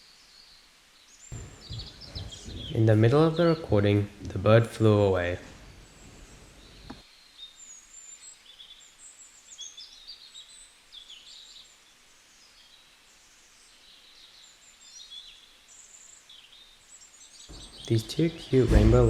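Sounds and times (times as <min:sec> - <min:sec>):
birds chirping: 0:01.0 - 0:11.5, 0:13.8 - 0:19.0
soft knock: 0:01.3 - 0:03.2, 0:17.5 - 0:19.0.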